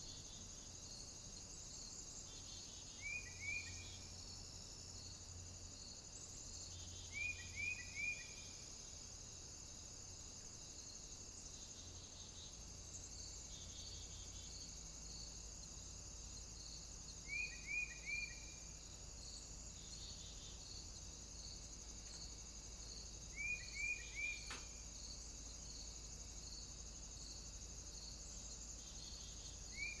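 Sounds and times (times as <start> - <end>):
songbird calls: 2.3 - 4.1, 6.7 - 8.6, 17.2 - 18.7, 23.2 - 24.8, 28.8 - 30.0
faint click: 24.4 - 24.8.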